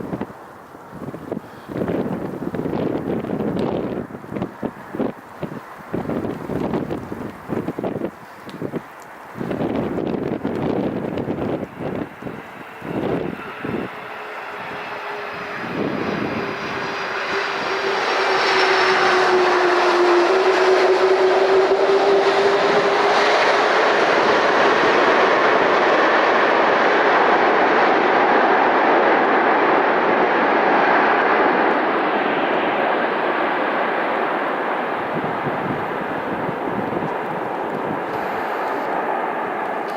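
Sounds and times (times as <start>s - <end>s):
jet engine whine: 0.0s - 39.9s
jet engines roaring: 0.0s - 39.9s
wind buffeting microphone: 0.0s - 39.9s.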